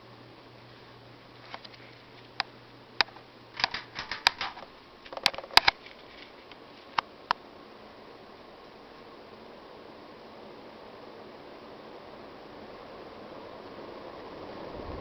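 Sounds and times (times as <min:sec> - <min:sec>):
pull-chain clicks and rattles: 0:03.6 - 0:05.8.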